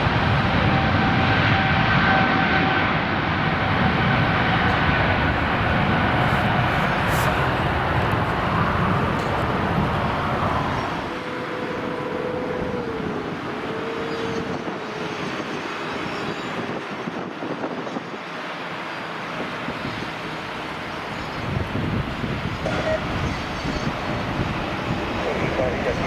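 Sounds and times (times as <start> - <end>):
jet engines roaring: 0.0 - 26.0
wind buffeting microphone: 0.0 - 26.0
faint whine: 3.4 - 16.8, 19.0 - 26.0.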